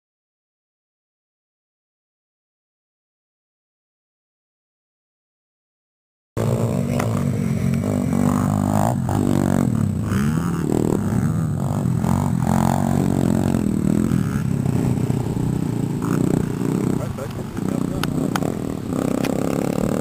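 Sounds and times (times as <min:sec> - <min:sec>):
dirt bike engine idling: 0:06.4 - 0:20.0.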